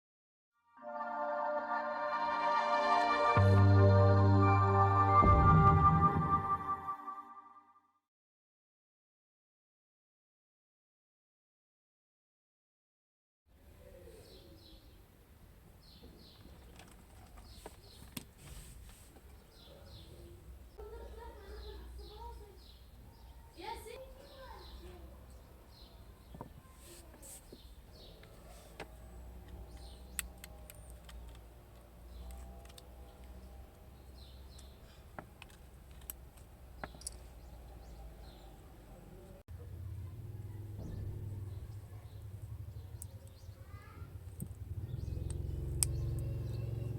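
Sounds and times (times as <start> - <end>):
bird chirps: 44.7 - 46.9.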